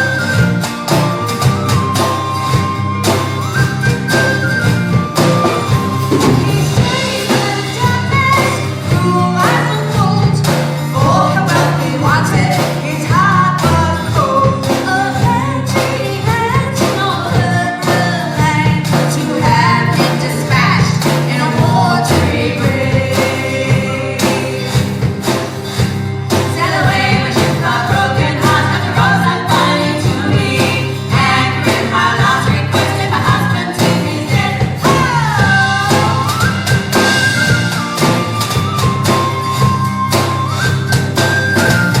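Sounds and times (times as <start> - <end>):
band playing live: 0.0 - 42.0
steady drum beat: 0.0 - 42.0
lead vocal singing: 5.4 - 25.4, 26.3 - 38.2.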